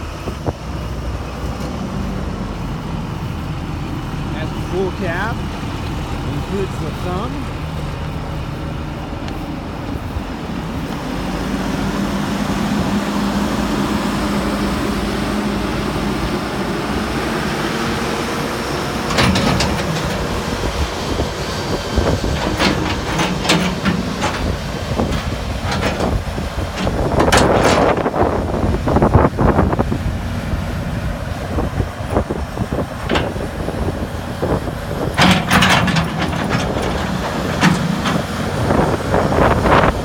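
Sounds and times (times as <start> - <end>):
excavator diesel engine running: 0.0 - 40.0
metallic clanks and squeals: 19.0 - 21.2, 22.0 - 28.0, 35.0 - 38.8.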